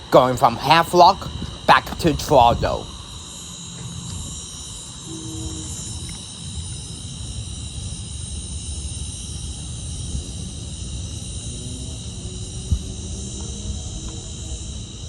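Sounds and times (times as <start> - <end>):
insect chorus: 0.0 - 15.0
wind rumble on microphone: 0.0 - 15.0
distant locomotive horn: 5.0 - 6.5.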